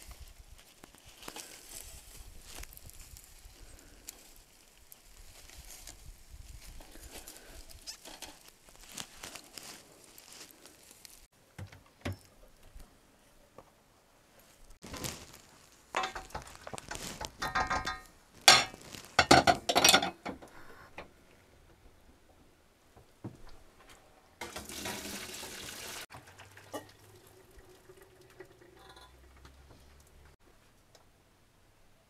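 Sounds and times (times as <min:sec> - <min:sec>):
dishes and utensils clinking: 0:16.0 - 0:16.5, 0:17.4 - 0:20.3.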